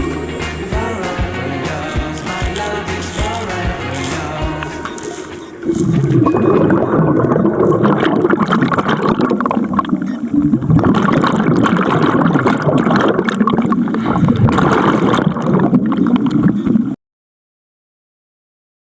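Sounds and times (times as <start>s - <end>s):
water bubbling and gurgling: 4.8s - 17.0s.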